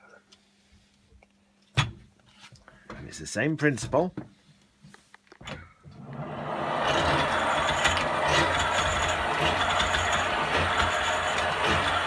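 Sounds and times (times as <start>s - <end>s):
treadle grinder running: 6.0s - 12.0s.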